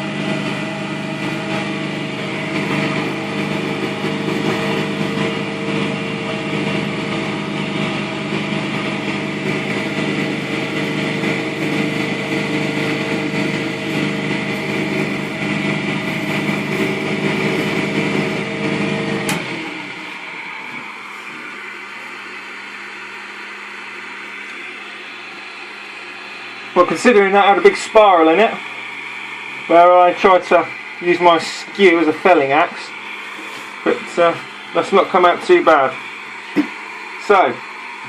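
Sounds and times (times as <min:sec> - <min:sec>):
wood lathe running: 0:00.0 - 0:38.0
sandpaper sanding spinning wood: 0:09.0 - 0:19.0.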